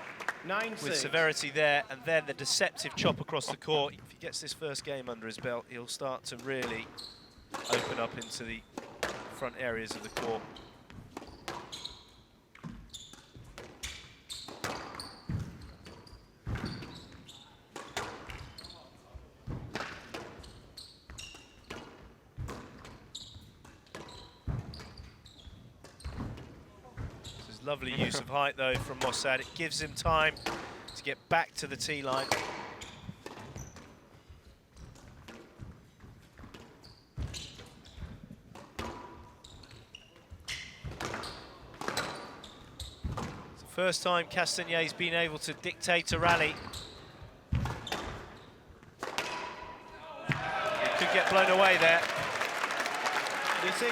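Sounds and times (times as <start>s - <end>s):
shoes squeaking on court: 6.6s - 8.8s, 9.9s - 19.6s, 20.2s - 22.0s, 22.7s - 26.4s, 27.0s - 28.2s, 31.8s - 34.0s, 34.7s - 38.3s, 39.3s - 43.5s, 46.2s - 48.7s
squash ball hitting rackets and walls: 6.6s - 9.3s, 9.9s - 12.0s, 12.6s - 18.6s, 19.4s - 27.4s, 30.4s - 30.9s, 32.2s - 34.0s, 34.8s - 43.5s, 46.6s - 50.4s.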